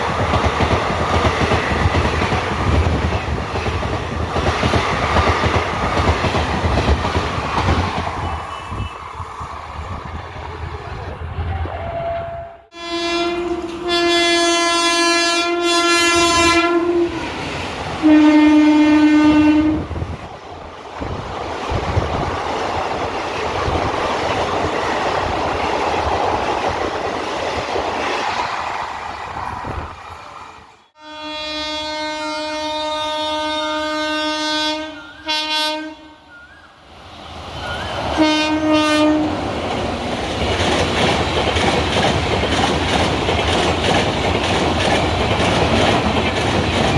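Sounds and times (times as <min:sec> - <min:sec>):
train rumble and wheel clatter: 0:00.0 - 0:31.0, 0:31.9 - 0:46.9
train horn blasts: 0:11.8 - 0:17.3, 0:18.0 - 0:19.9, 0:31.0 - 0:36.6, 0:37.6 - 0:39.4.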